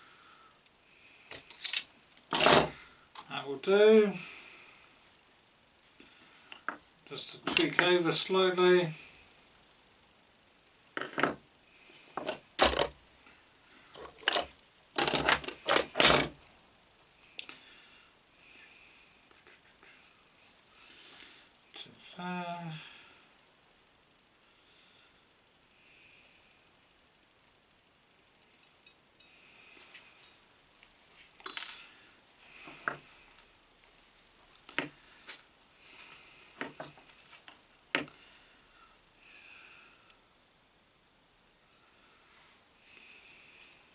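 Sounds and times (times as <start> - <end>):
clattering of parts and tools: 1.3 - 3.3, 7.4 - 8.0, 11.0 - 11.4, 12.2 - 13.0, 13.9 - 16.4, 31.4 - 32.0
metallic clinks of small tools: 31.4 - 32.0.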